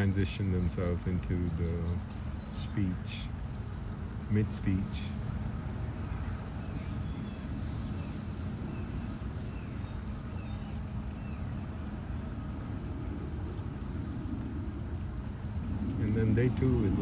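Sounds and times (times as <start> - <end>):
low rumble: 11.7 - 17.0.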